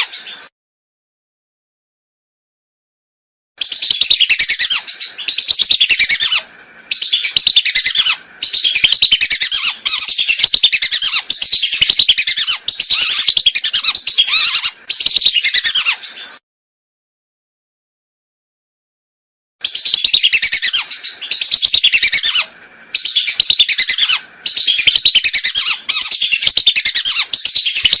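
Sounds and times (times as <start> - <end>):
whistling ducks calling: 3.6 - 16.4, 19.6 - 28.0.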